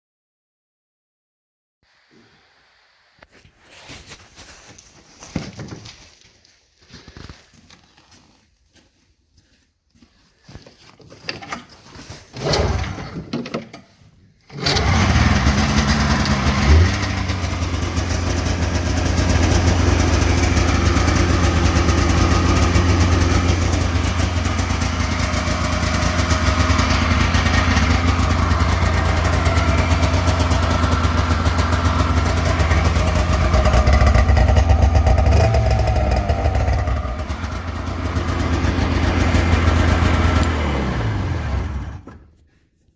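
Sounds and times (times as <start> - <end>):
snowmobile engine starting and idling: 11.4 - 13.8, 14.4 - 42.4.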